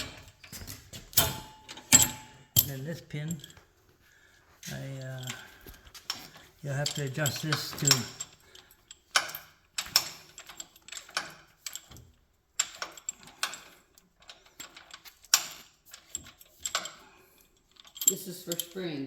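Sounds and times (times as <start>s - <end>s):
metallic clicks and clanks: 0.0s - 3.6s, 4.6s - 19.0s.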